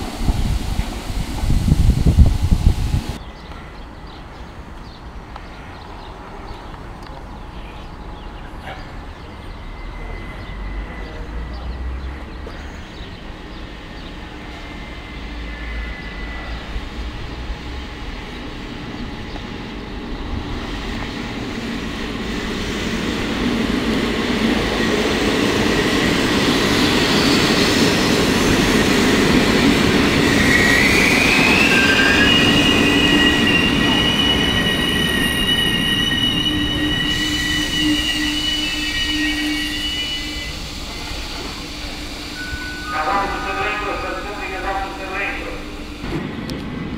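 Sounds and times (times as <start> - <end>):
electric train rumbling: 0.0 - 46.9
high wheel squeal: 13.7 - 17.3, 25.5 - 44.2.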